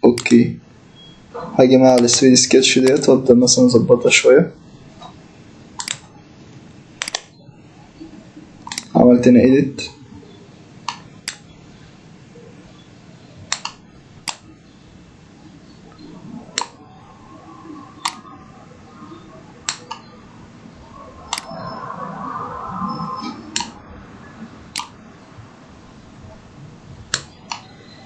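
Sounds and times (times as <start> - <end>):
computer mouse clicking: 0.1 - 0.4, 5.8 - 6.0, 7.0 - 7.3, 8.6 - 8.9, 10.9 - 11.5, 13.5 - 14.4, 18.0 - 18.2, 21.3 - 21.5, 23.5 - 23.8, 24.7 - 25.0.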